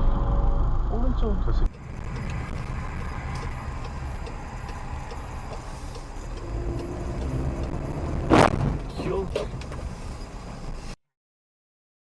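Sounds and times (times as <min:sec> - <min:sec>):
vehicle engine and road rumble: 0:00.0 - 0:11.0
loud bang: 0:08.0 - 0:09.8.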